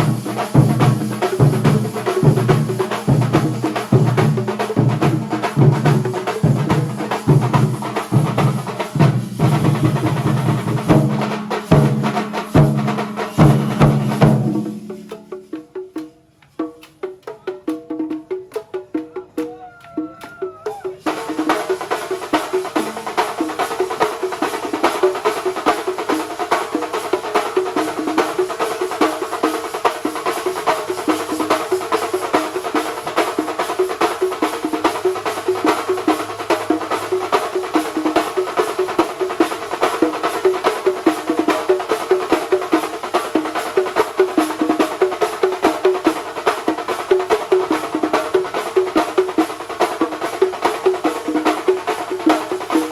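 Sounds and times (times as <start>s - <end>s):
fast drum rhythm: 0.0s - 52.9s.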